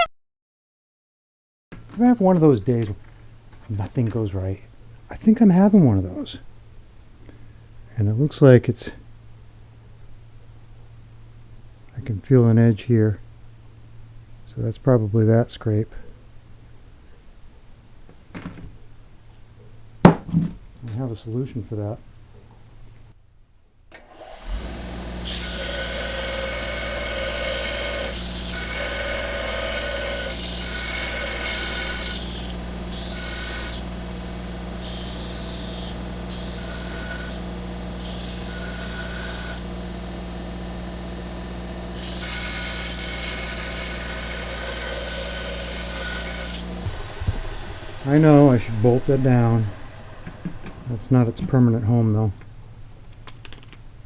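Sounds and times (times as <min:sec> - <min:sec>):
electric grinder motor humming: 0:24.0 - 0:51.2
grinder grinding metal: 0:24.0 - 0:52.4.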